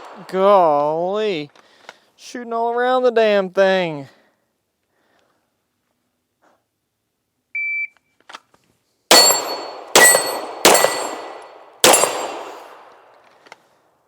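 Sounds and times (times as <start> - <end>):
gunshots ringing: 9.1 - 13.1.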